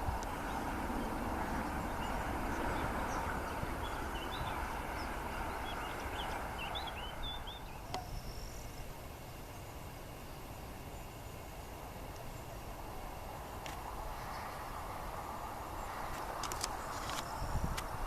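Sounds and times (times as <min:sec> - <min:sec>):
jet engine noise: 0:00.0 - 0:18.0
small birds chirping: 0:00.1 - 0:09.7.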